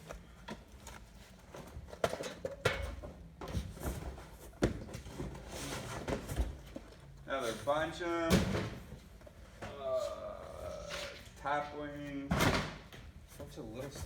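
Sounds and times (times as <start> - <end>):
boxes knocking and bumping: 1.5 - 7.1.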